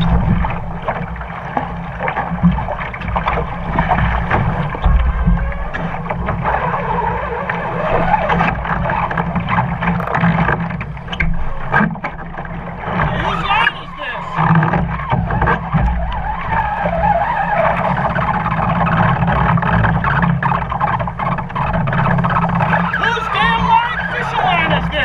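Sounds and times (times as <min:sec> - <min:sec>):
low rumble: 0:00.0 - 0:09.9
water splashing against a hull: 0:00.0 - 0:25.0.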